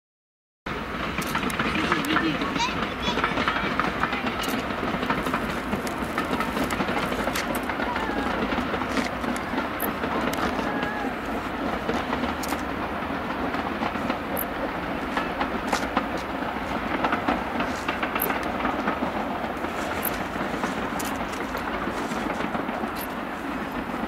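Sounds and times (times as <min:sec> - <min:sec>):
train running: 0:00.7 - 0:24.0
wheels clicking over rail joints: 0:00.7 - 0:24.0.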